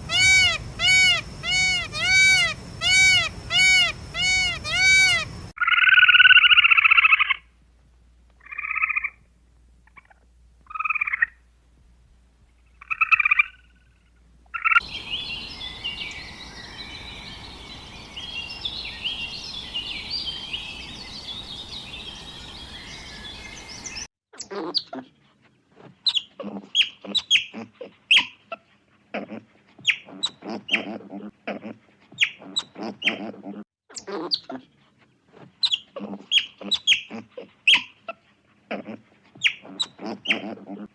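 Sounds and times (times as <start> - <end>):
farm animal calls: 0.0 - 5.5, 14.6 - 24.1
sharp bird calls: 0.0 - 5.5, 14.6 - 24.1
flock of small birds chirping: 14.8 - 24.1
steady hiss: 14.8 - 24.1.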